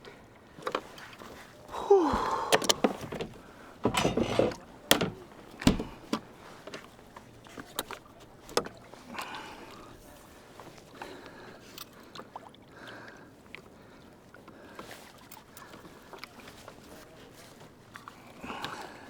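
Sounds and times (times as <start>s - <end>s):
knocks and thuds against kayak: 2.1s - 6.9s.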